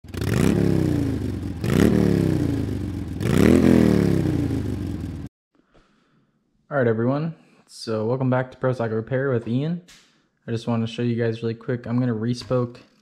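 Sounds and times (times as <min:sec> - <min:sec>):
motorcycle engine revving: 0:00.0 - 0:05.3.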